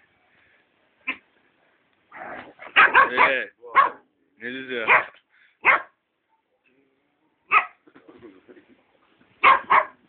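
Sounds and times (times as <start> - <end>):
dog barking: 2.7 - 4.0, 4.9 - 6.0, 7.5 - 7.8, 9.4 - 10.0.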